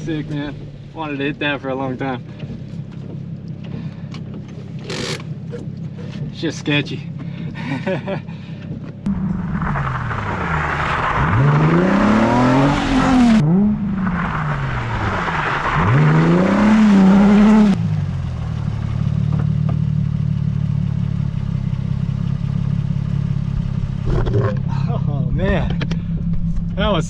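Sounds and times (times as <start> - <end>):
car engine idling: 0.0 - 16.0, 17.4 - 27.0
car engine revving: 8.6 - 27.0.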